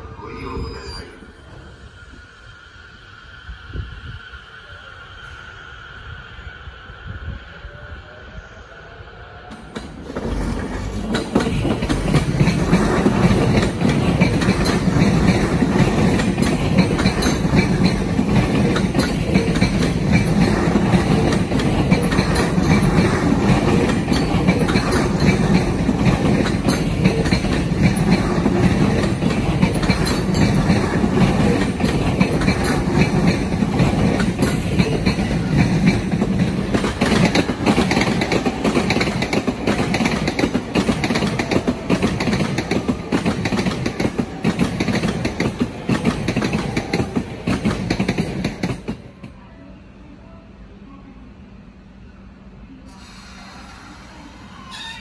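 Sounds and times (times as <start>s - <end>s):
train wheels rumbling on rail: 1.4s - 49.4s
wheels clacking over rail joints: 9.7s - 49.0s.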